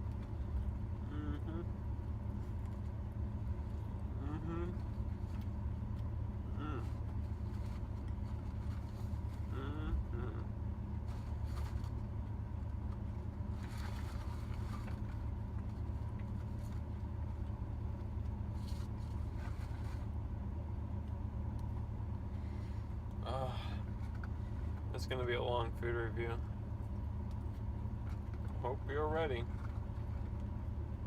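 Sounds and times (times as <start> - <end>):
faint rustle: 0.0 - 20.3
truck idling hum: 0.0 - 31.0.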